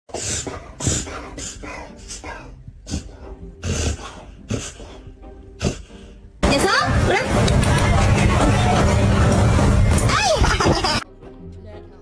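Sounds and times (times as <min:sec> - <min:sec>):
dog breathing noisily: 0:00.1 - 0:06.2.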